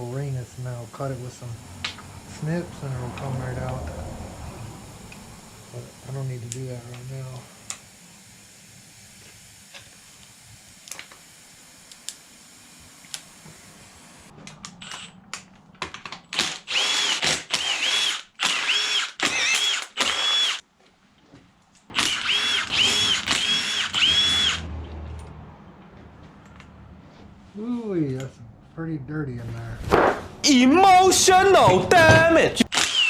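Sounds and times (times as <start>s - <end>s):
cordless power tool whining: 16.4s - 20.6s, 21.9s - 24.7s, 32.7s - 33.0s.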